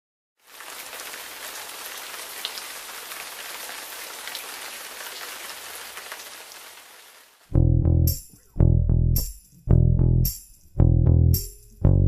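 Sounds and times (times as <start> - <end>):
rain falling: 0.4 - 7.5.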